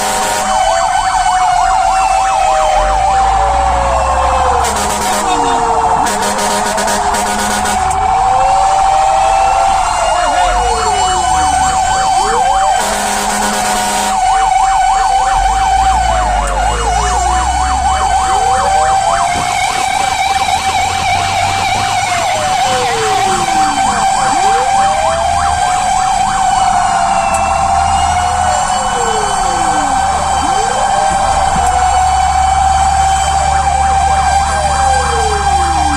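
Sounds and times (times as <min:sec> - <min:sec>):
horn blast: 0:00.0 - 0:00.7, 0:04.5 - 0:08.2, 0:10.1 - 0:14.6
steady siren tone: 0:00.0 - 0:35.9
wailing fire engine sirens: 0:00.0 - 0:35.9
yelping siren warble: 0:00.0 - 0:35.9.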